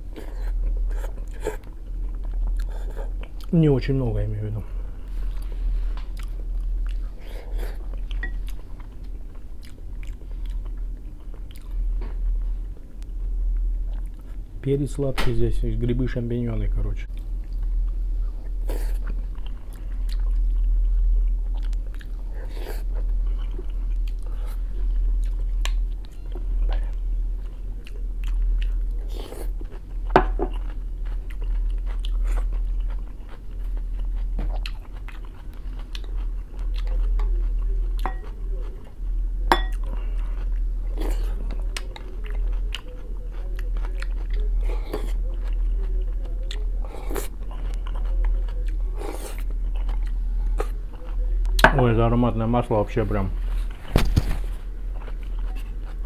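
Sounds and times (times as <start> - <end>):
steady low hum: 0.0 - 56.0
person chewing and biting: 5.2 - 11.9, 17.1 - 38.9, 39.7 - 51.6, 54.5 - 56.0.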